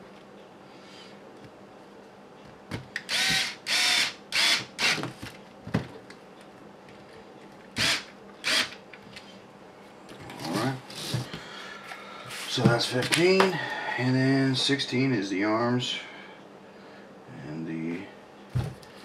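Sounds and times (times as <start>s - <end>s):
electric screwdriver running: 3.1s - 5.0s, 7.8s - 8.8s.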